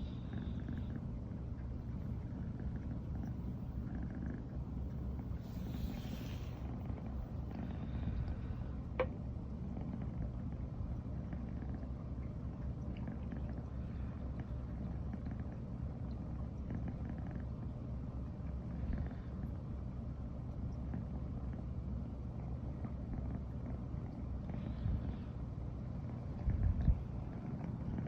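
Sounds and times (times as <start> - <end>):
cat purring: 0.0 - 8.8, 9.6 - 12.0, 12.9 - 17.7, 18.6 - 19.6, 22.7 - 28.0.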